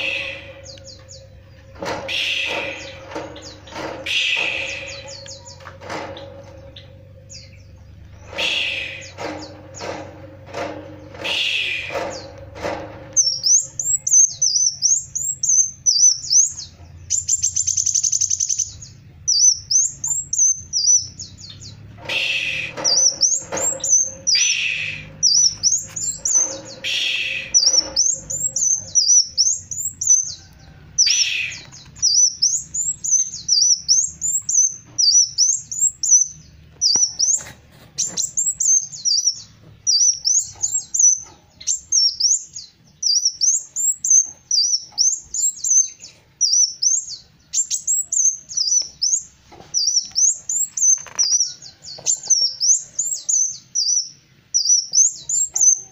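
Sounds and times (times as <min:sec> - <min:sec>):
sunbird warbling twitter: 0:00.0 - 0:05.7, 0:06.3 - 0:09.9, 0:11.0 - 0:12.4, 0:13.2 - 0:51.6
bird buzzy trill: 0:00.0 - 0:51.6
harsh bird calls: 0:00.0 - 0:55.9.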